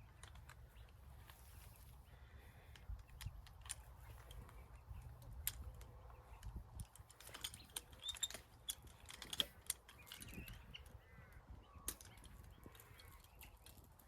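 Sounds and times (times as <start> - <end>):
metallic clicks of barbed wire: 2.6 - 10.9
faint bird calls: 9.5 - 13.7.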